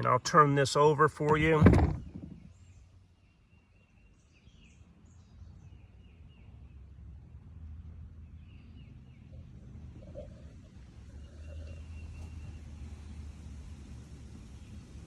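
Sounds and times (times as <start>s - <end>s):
low steady rumble: 0.0s - 3.0s
birds chirping: 8.2s - 13.8s.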